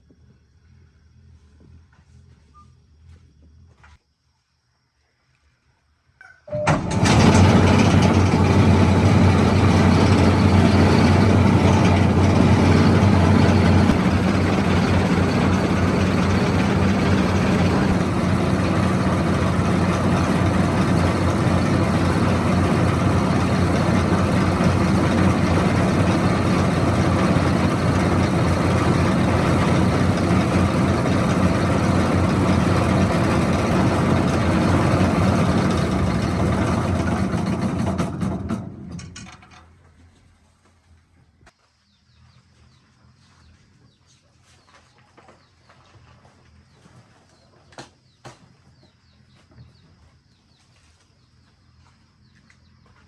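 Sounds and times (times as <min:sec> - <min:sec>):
rice milling machine running: 0:06.5 - 0:39.3.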